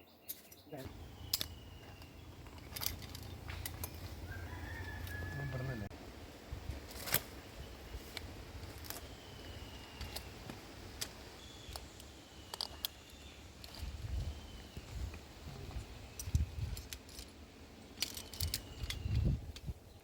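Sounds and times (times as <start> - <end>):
metal climbing hardware clinking: 0.2 - 5.3, 12.4 - 14.0, 16.1 - 19.7.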